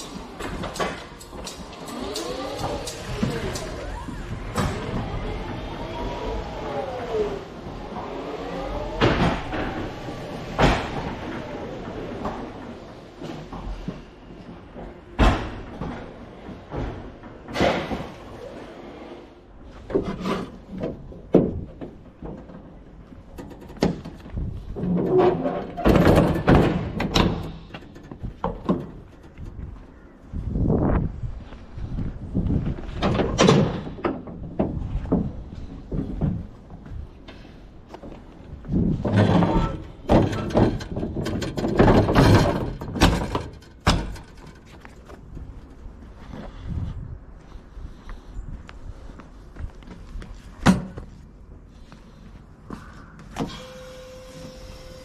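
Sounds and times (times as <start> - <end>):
mechanical clattering and rattling: 0.0 - 13.9, 38.5 - 45.9.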